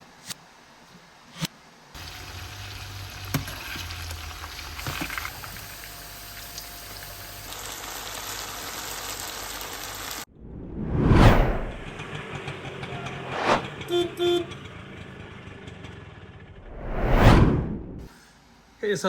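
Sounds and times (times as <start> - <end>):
hot oil sizzling: 2.0 - 10.3.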